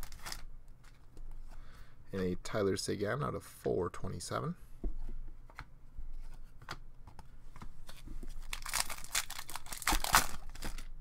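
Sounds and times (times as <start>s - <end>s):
foil wrapper crinkling and tearing: 0.0s - 0.5s, 8.4s - 10.9s.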